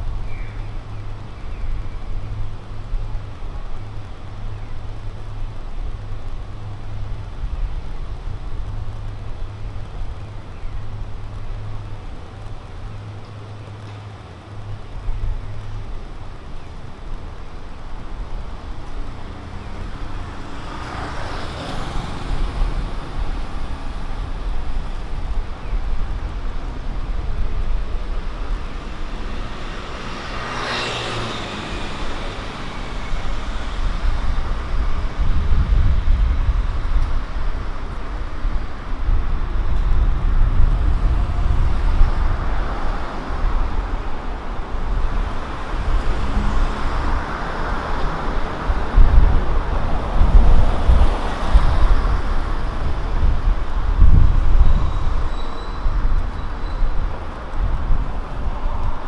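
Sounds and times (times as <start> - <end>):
cars driving past: 28.0 - 59.0.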